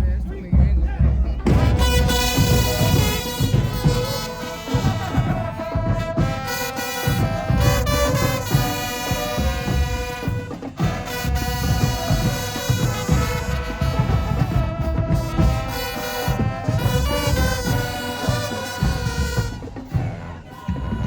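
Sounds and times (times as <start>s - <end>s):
bass drum hits: 0.0s - 5.3s
brass chords: 0.0s - 21.0s
marching band playing: 0.0s - 21.0s.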